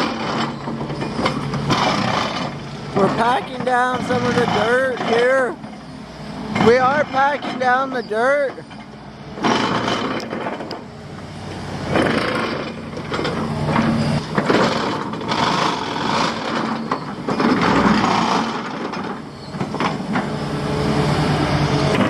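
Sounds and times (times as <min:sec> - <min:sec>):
mechanical clatter: 0:00.0 - 0:05.7, 0:09.4 - 0:10.8, 0:11.9 - 0:20.3
construction machinery engine: 0:00.0 - 0:22.0.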